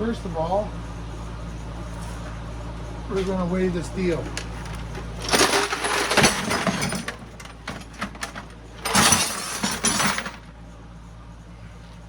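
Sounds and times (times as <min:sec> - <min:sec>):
steel scrap clattering: 0:04.1 - 0:10.4.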